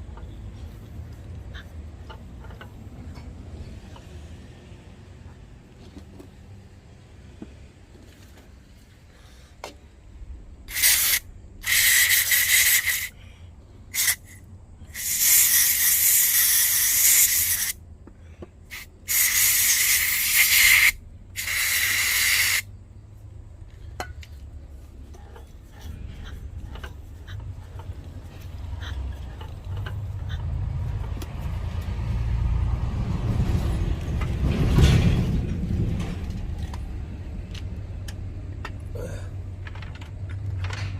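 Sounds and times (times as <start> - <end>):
pressurised spray hissing: 10.7 - 13.2, 13.9 - 17.8, 18.7 - 22.7.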